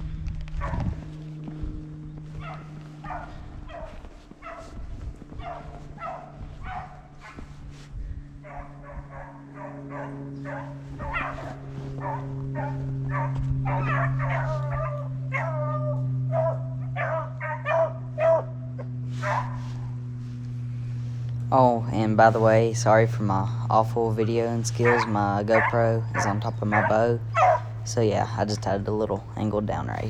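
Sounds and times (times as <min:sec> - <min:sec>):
steady low hum: 0:00.0 - 0:30.0
hounds baying: 0:00.6 - 0:07.7, 0:08.4 - 0:20.1, 0:22.2 - 0:30.0.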